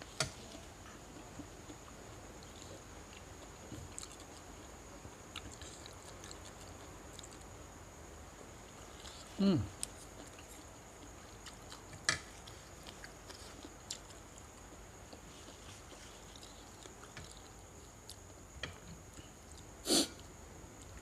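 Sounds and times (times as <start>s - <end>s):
faint eating mouth clicks: 5.4s - 7.5s, 9.0s - 19.7s
short sniffs: 19.8s - 20.2s.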